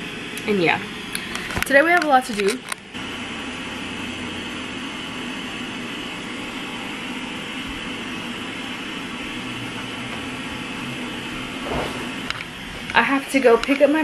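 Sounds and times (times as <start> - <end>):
steady whooshing noise: 11.5 - 12.3.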